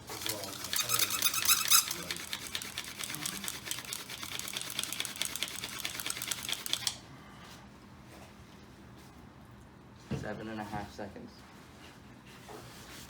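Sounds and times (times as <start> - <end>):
hand drill grinding on wood: 0.0 - 6.9.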